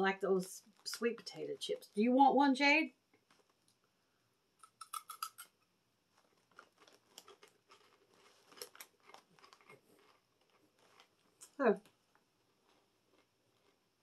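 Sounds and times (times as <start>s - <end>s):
crunchy snack being chewed: 3.2s - 3.8s, 4.6s - 5.5s, 6.1s - 14.0s.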